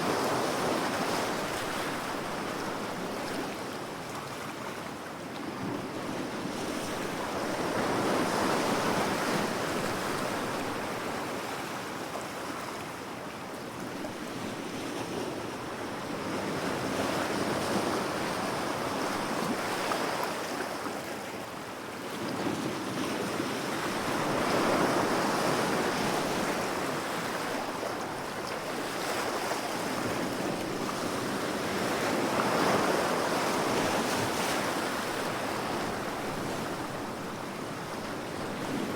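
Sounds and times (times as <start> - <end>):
ocean waves washing onto shore: 22.4 - 38.9.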